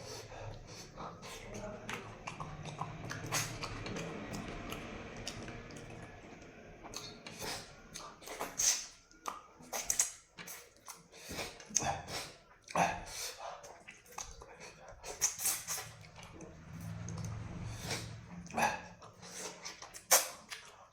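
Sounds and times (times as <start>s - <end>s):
steady low hum: 0.0s - 9.2s, 14.7s - 19.4s
crunching and chewing food: 0.0s - 20.9s.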